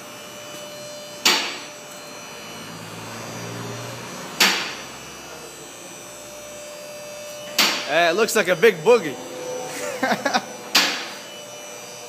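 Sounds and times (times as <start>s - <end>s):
steady background hum: 4.4s - 12.0s.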